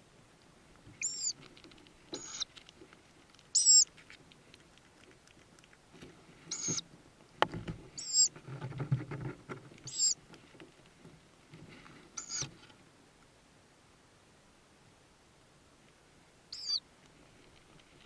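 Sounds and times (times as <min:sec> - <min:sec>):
owl nestlings squeaking: 0:01.0 - 0:01.4, 0:02.1 - 0:02.5, 0:03.5 - 0:03.9, 0:06.5 - 0:06.8, 0:08.0 - 0:08.3, 0:09.9 - 0:10.2, 0:12.2 - 0:12.5, 0:16.5 - 0:16.8.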